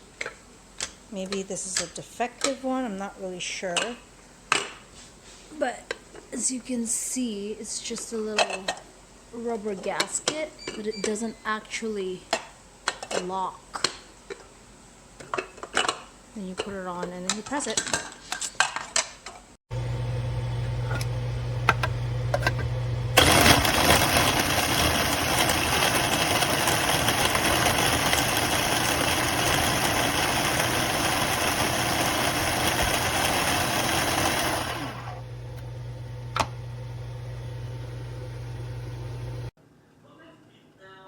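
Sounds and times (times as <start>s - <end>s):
food chopper motor humming: 19.7s - 39.5s.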